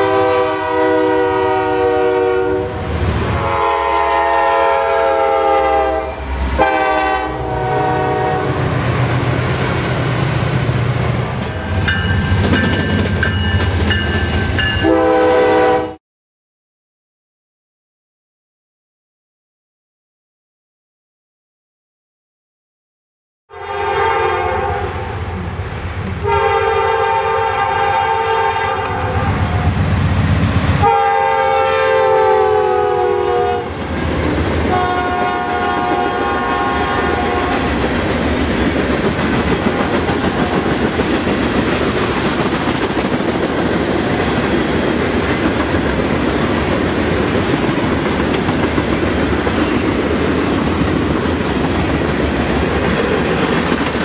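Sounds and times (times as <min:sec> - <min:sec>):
locomotive horn blasts: 0:00.0 - 0:08.7, 0:14.8 - 0:16.0, 0:23.5 - 0:25.2, 0:26.2 - 0:29.6, 0:30.8 - 0:33.7, 0:34.7 - 0:37.7
train wheels clacking over rail joints: 0:11.3 - 0:14.8, 0:37.1 - 0:54.0.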